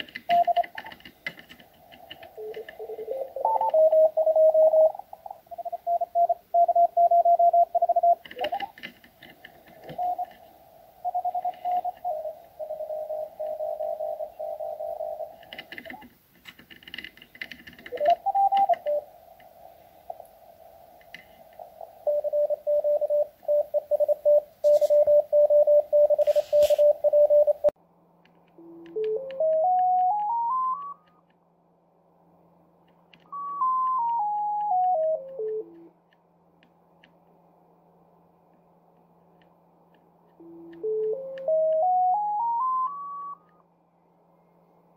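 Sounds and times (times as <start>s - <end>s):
morse code tones: 0.0s - 1.0s, 2.2s - 8.9s, 9.6s - 10.4s, 11.0s - 16.1s, 17.8s - 19.1s, 21.2s - 27.8s, 28.6s - 31.2s, 33.3s - 35.9s, 40.4s - 43.6s
low hum: 0.0s - 16.3s, 17.9s - 44.9s
receiver hiss: 0.0s - 27.8s
tone stepping in pitch: 28.6s - 31.2s.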